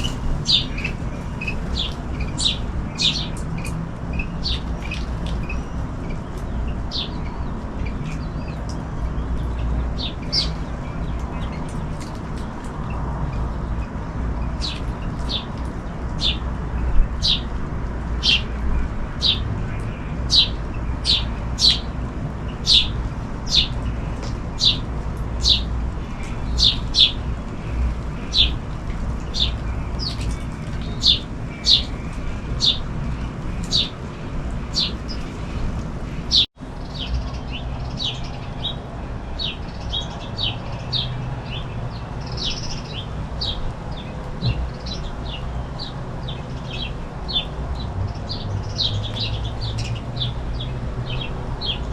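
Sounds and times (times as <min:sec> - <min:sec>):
bird chirping: 0:00.0 - 0:03.7
rain rumble: 0:00.0 - 0:51.9.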